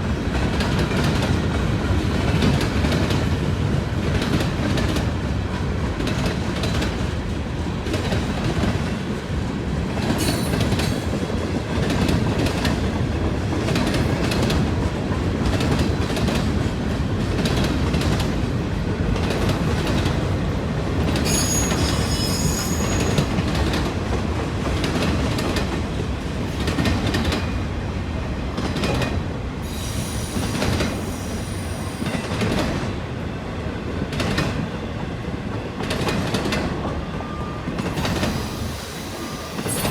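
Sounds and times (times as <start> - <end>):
freight train cars rolling: 0.0 - 33.4, 34.0 - 39.9
high-pitched wheel squeal: 21.2 - 23.2.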